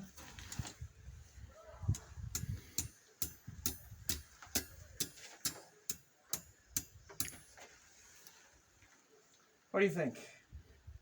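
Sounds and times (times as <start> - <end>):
hammer tapping iron on anvil: 2.4 - 7.4.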